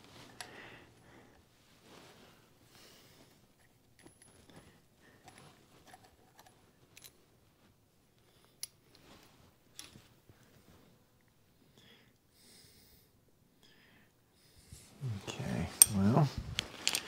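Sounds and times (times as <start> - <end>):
metal parts and tools clinking: 15.7 - 17.0.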